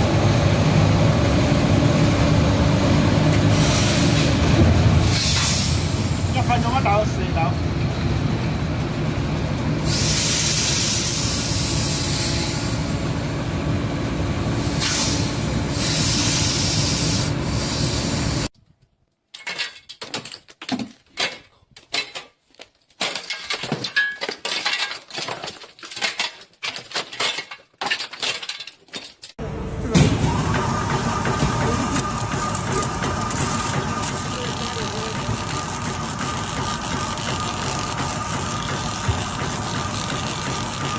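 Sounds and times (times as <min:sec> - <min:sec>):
low machine rumble: 0:29.4 - 0:40.9.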